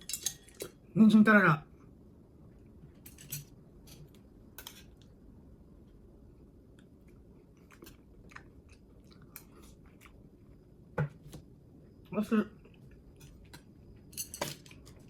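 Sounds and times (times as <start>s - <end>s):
person chewing food: 6.4s - 11.5s.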